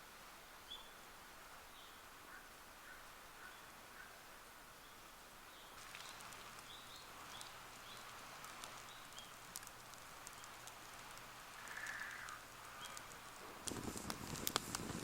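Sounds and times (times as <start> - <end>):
birds chirping faintly: 0.4 - 13.6
campfire crackling: 5.6 - 15.0.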